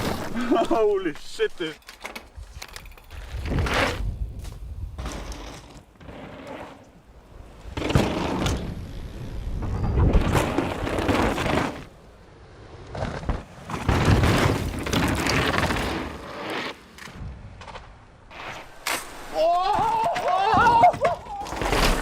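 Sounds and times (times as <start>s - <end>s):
bike rattling and knocks: 1.7s - 6.4s, 7.8s - 8.8s, 12.9s - 16.2s
mountain bike tyre roar: 3.1s - 17.2s.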